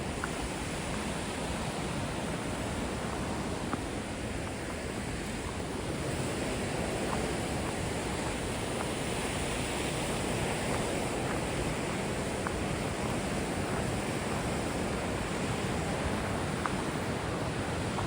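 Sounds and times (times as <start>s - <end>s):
river rapids roaring: 5.4s - 18.0s.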